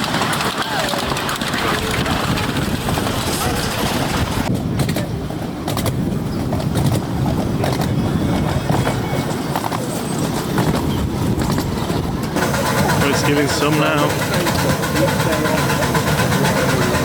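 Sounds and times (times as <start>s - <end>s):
miniature train rumbling on track: 0.0s - 17.0s
track clicks: 11.6s - 17.0s.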